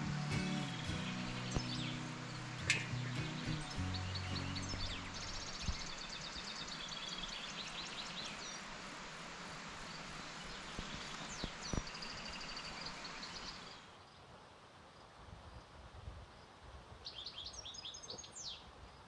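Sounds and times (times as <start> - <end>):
songbird trilling: 0.0 - 8.6
outdoor hiss: 0.0 - 15.3.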